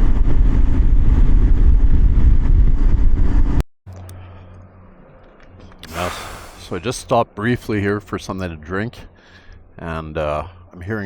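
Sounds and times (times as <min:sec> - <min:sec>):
loud wind rush: 0:05.9 - 0:07.0.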